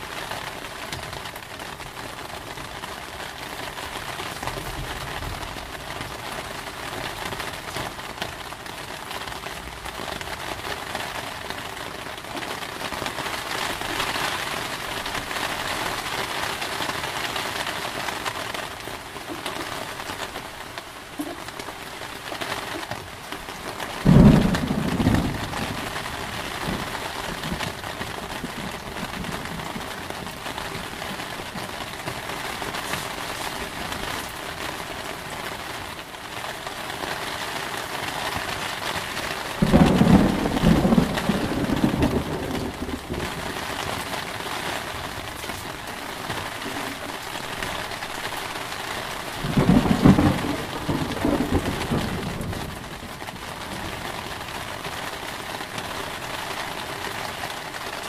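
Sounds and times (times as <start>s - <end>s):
heavy rain falling: 0.0s - 58.0s
thunder claps rumbling: 24.0s - 32.8s, 39.6s - 47.8s, 49.3s - 54.5s.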